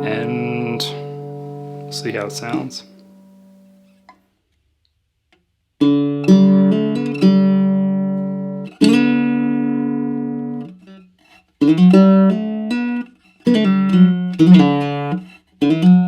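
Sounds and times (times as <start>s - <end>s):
ukulele strummed and plucked: 0.0s - 3.2s.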